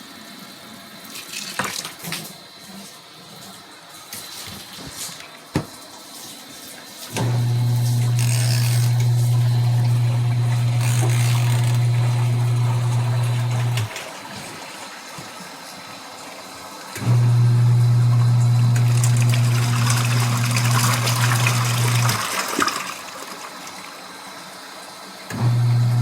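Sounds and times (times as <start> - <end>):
washing machine motor humming: 7.1 - 14.8, 16.9 - 22.9, 25.2 - 26.0.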